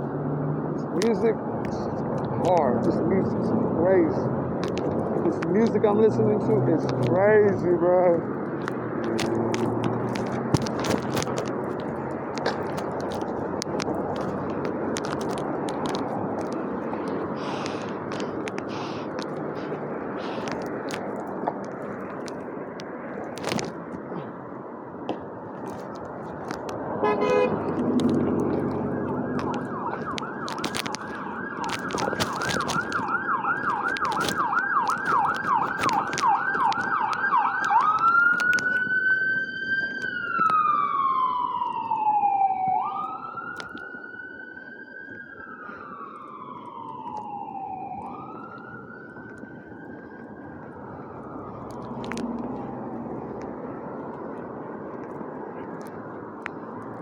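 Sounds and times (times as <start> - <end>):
emergency vehicle siren: 0.0 - 57.0
street noise: 0.0 - 57.0
short low horn blast: 27.0 - 27.6.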